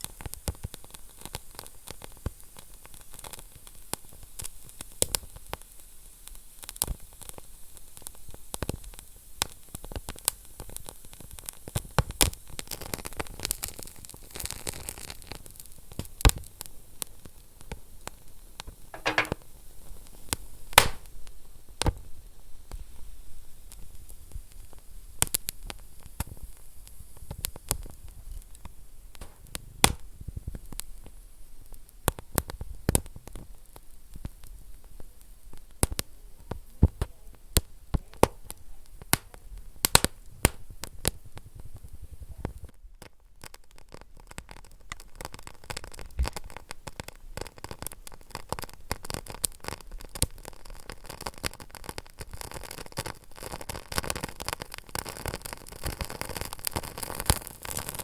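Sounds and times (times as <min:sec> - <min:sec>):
wood fire crackling and popping: 0:00.0 - 0:05.7, 0:06.6 - 0:18.3, 0:19.0 - 0:22.1, 0:23.7 - 0:58.0
fire low steady hiss: 0:00.0 - 0:58.0.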